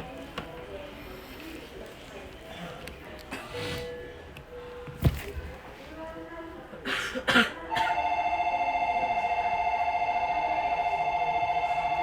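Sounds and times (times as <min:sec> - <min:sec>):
electronic departure bell trill: 0:08.0 - 0:12.0.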